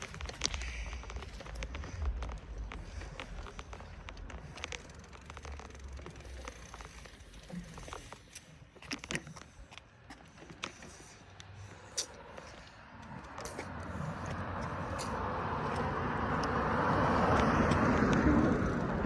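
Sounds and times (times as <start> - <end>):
wind rumbling on microphone: 0.0 - 8.0, 13.0 - 19.0
bicycle clicks and rattles: 0.0 - 19.0.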